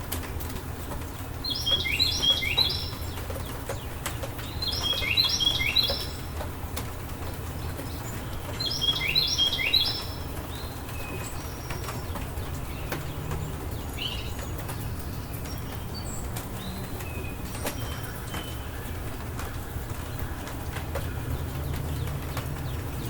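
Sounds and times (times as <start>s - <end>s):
steady rain: 0.0s - 23.0s
birds chirping: 0.2s - 23.0s.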